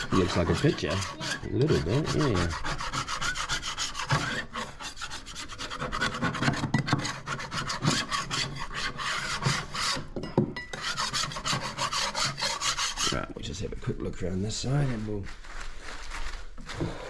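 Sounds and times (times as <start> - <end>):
scraper rasping on wood: 0.0 - 10.2, 10.8 - 13.3.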